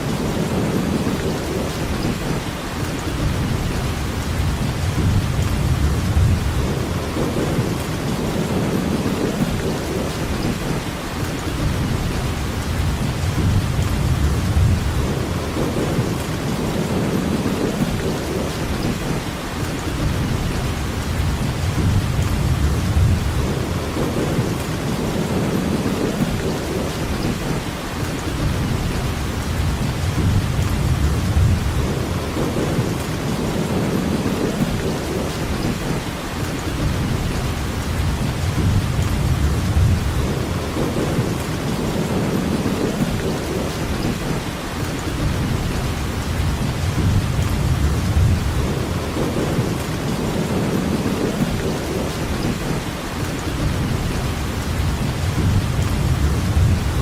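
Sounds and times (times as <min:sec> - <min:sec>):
steady rainfall: 0:00.0 - 0:57.0
low rumble: 0:36.8 - 0:42.0, 0:45.2 - 0:49.9, 0:53.6 - 0:57.0.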